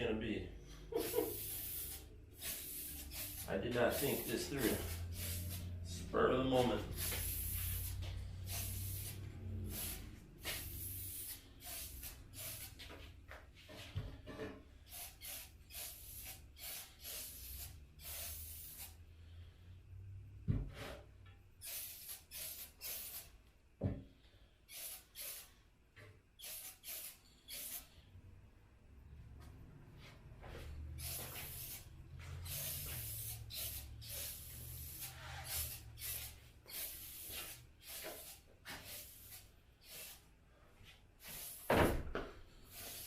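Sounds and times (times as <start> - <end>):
spray paint can hissing: 0.9 - 5.9, 6.8 - 13.0, 14.9 - 19.0, 21.6 - 23.3, 24.7 - 25.6, 26.4 - 27.9, 31.0 - 40.3, 41.2 - 41.8, 42.7 - 43.0.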